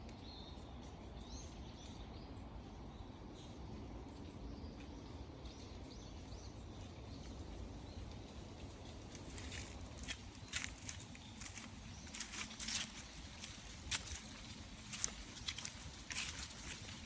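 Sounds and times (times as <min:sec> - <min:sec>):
small birds chirping: 0:04.5 - 0:17.0.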